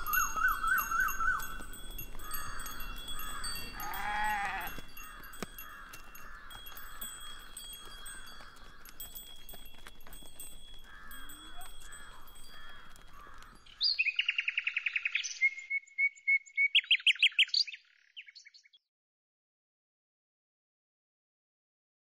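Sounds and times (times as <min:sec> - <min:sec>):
songbird trilling: 0:00.0 - 0:01.6, 0:10.9 - 0:18.7.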